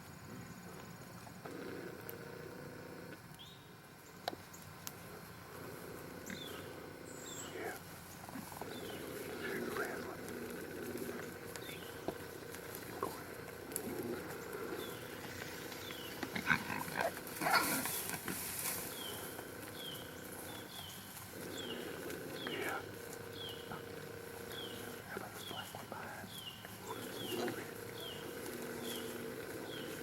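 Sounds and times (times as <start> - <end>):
hogs grunting: 1.4 - 3.2, 5.0 - 30.0
hogs squealing: 6.2 - 30.0.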